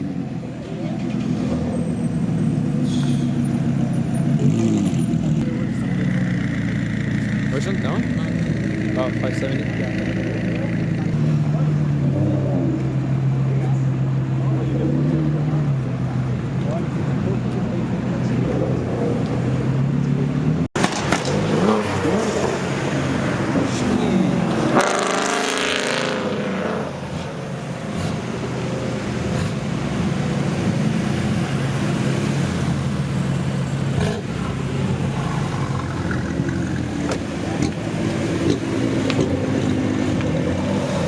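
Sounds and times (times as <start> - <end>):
car engines droning: 0.0 - 41.0
engine revving: 2.8 - 13.8, 18.2 - 41.0.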